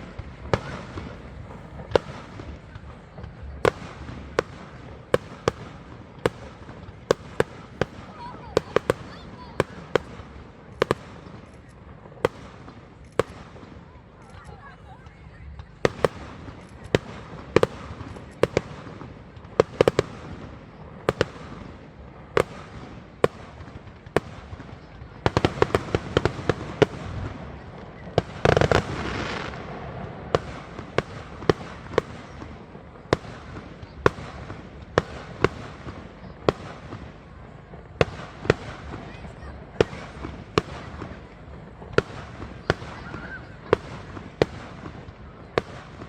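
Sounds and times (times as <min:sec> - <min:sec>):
fireworks bangs: 0:00.0 - 0:46.0
fireworks crackling: 0:00.0 - 0:46.0.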